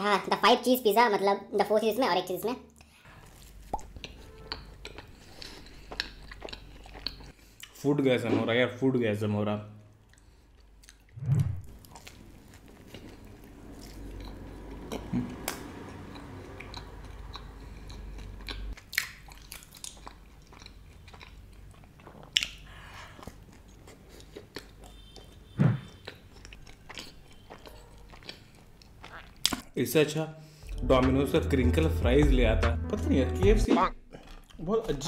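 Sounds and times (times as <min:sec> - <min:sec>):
person chewing crunchy food: 0:02.8 - 0:07.8, 0:09.9 - 0:29.7, 0:34.0 - 0:34.6
short low thump: 0:11.2 - 0:11.7.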